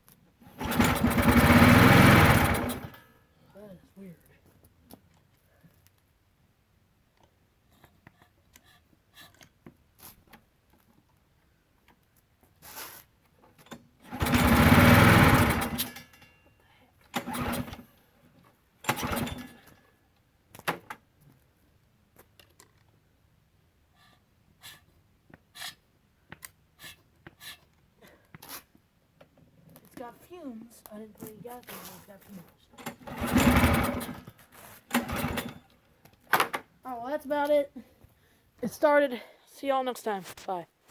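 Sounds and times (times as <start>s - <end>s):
recoil starter cranking: 0.5s - 3.0s, 13.7s - 16.2s, 17.1s - 17.9s, 18.8s - 19.8s, 32.8s - 35.8s
small engine bursts: 0.5s - 3.1s, 14.0s - 16.3s, 17.1s - 18.0s, 18.8s - 19.8s, 32.8s - 35.8s.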